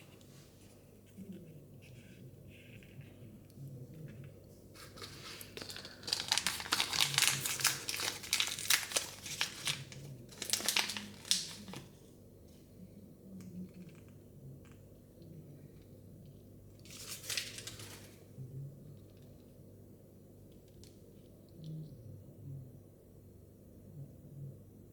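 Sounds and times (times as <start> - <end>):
faint rustles and clicks: 0.0 - 12.7
plastic packaging crinkling and tearing: 4.8 - 12.0, 16.8 - 18.2.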